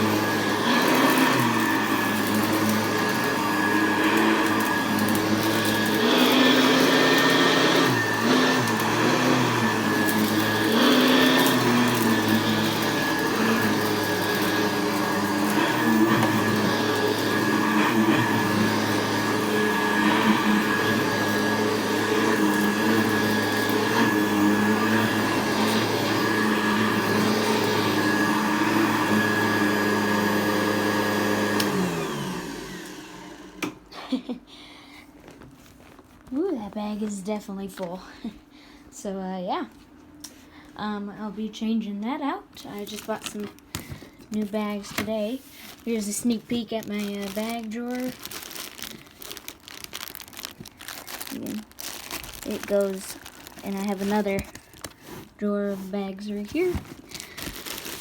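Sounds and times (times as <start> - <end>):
vacuum cleaner on carpet: 0.0 - 34.2, 44.3 - 48.2, 52.4 - 57.8.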